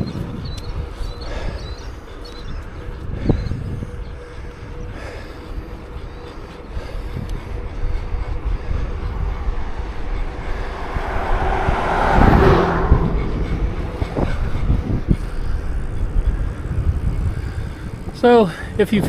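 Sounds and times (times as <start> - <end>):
wind and road rumble: 0.0 - 19.0
car passing: 6.6 - 19.0.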